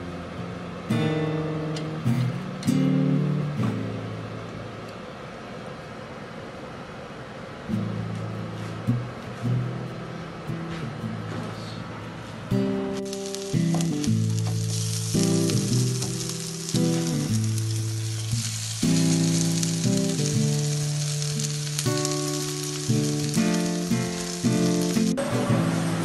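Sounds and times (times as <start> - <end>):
background music sustained notes: 12.6 - 26.0
bread sizzling in oil: 13.0 - 26.0.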